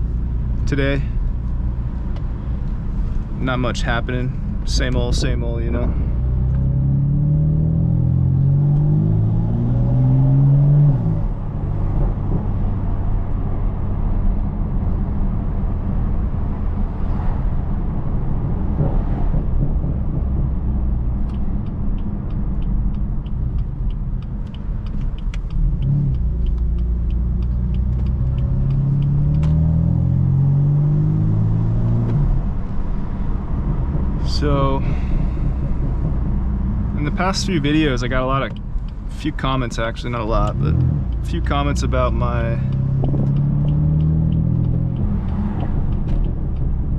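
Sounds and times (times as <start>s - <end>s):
car engine accelerating through gears: 4.8s - 46.9s.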